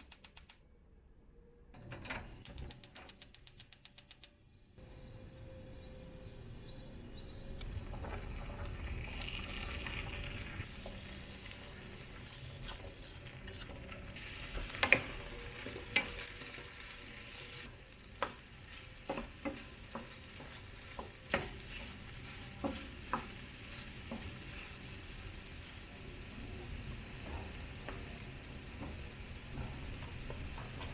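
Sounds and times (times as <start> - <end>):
food sizzling in a pan: 8.7 - 30.9.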